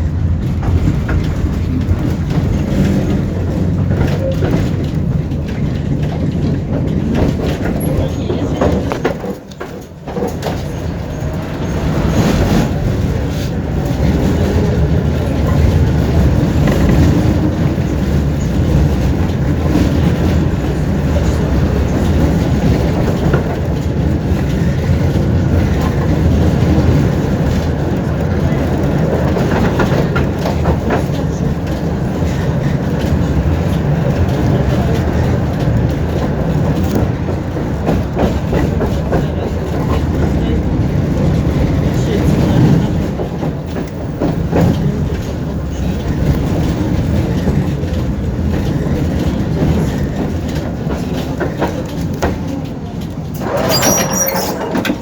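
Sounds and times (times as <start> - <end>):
tram rumbling on rails: 0.0 - 55.0
wheels clicking over rail joints: 0.0 - 55.0.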